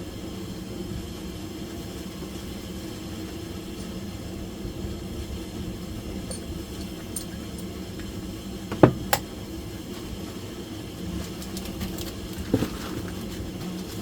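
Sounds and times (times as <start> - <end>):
steady low hum: 0.0 - 14.0
sharp knocks on engine parts: 8.7 - 9.3.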